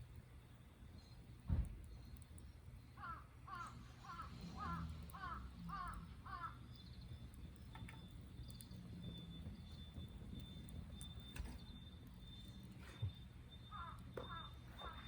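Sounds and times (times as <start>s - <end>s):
bird calling: 3.0s - 6.6s, 13.6s - 15.0s.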